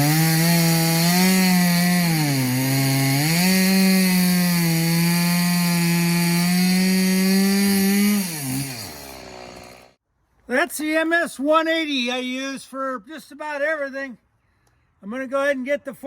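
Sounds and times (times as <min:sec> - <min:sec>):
chainsaw cutting wood: 0:00.0 - 0:10.0.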